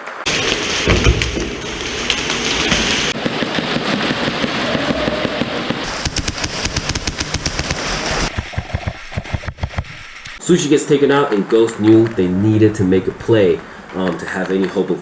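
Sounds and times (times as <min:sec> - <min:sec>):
airsoft guns firing: 0:03.2 - 0:08.0.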